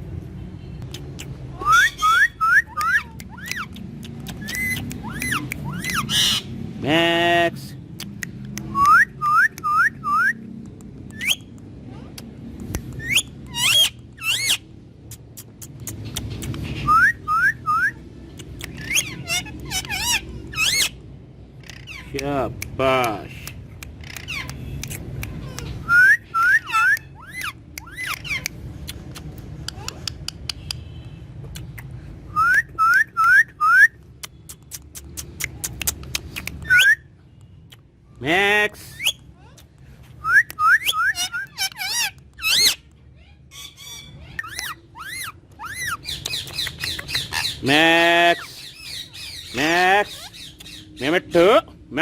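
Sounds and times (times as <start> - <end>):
parrot whistling: 1.6 - 3.7, 4.4 - 6.5, 13.0 - 14.6, 16.7 - 18.0, 25.8 - 28.4, 32.3 - 34.0, 36.6 - 37.1, 40.2 - 42.8, 43.6 - 47.6
sharp clicks: 2.8 - 5.7, 22.5 - 25.8, 34.2 - 36.8.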